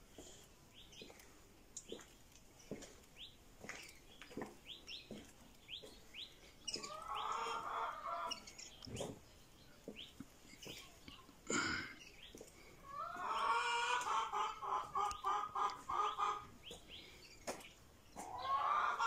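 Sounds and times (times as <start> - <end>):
birds chirping: 0.0 - 19.0
footsteps on pavement: 0.1 - 7.2, 8.3 - 11.2, 12.2 - 13.4, 16.6 - 18.4.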